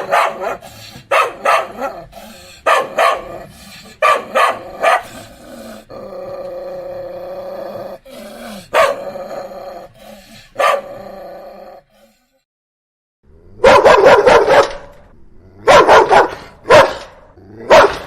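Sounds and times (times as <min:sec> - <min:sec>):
dog barking: 0:00.0 - 0:05.2, 0:08.7 - 0:09.1, 0:10.6 - 0:11.0, 0:13.6 - 0:15.0, 0:15.6 - 0:18.0
dog drawn-out cry: 0:00.0 - 0:05.3, 0:08.5 - 0:09.2.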